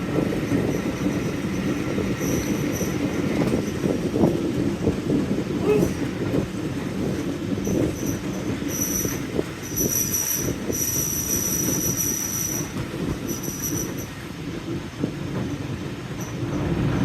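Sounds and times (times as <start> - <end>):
train rumbling on rails: 0.0 - 17.0
train wheels squealing: 0.2 - 4.1, 7.6 - 14.6.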